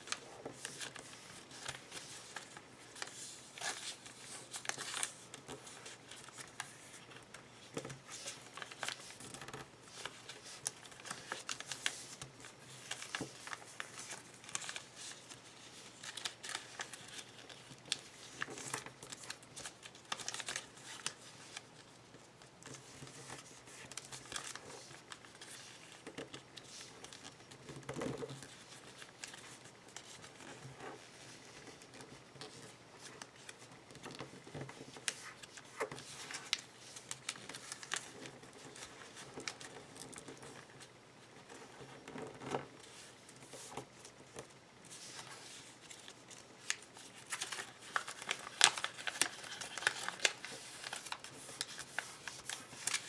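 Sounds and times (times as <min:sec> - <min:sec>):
sharp paper crackles: 0:00.0 - 0:21.7, 0:44.9 - 0:53.0
paper rustling and crinkling: 0:00.0 - 0:53.0.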